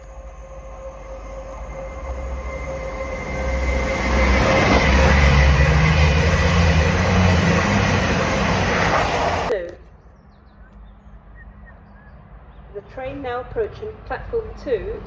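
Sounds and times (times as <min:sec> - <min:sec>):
deep rumble: 0:00.0 - 0:09.5
train running: 0:00.0 - 0:09.6.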